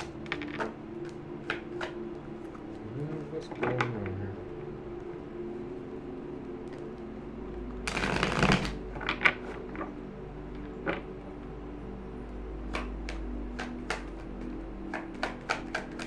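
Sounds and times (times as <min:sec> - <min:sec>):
cards being shuffled: 0:07.9 - 0:09.6
cards tapping and snapping: 0:12.7 - 0:16.0.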